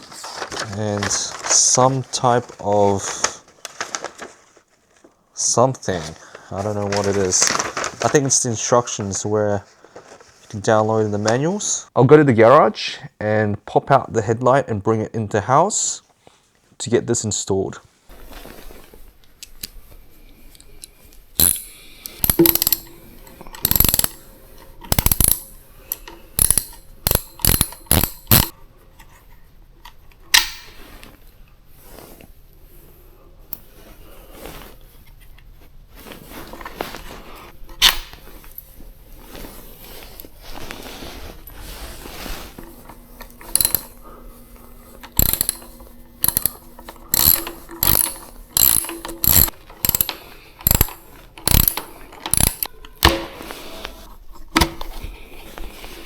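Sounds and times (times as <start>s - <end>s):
hand ratchet clicking: 21.4s - 28.6s, 42.8s - 44.0s, 44.8s - 53.2s.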